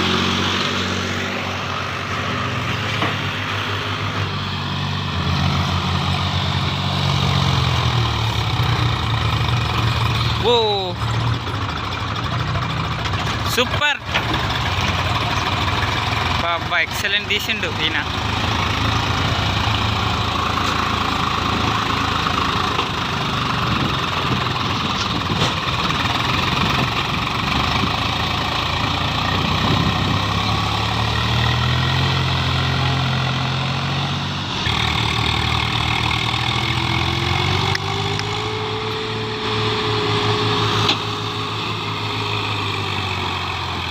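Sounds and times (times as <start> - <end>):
tractor diesel engine running: 0.0 - 43.9
rising whine: 34.4 - 43.9.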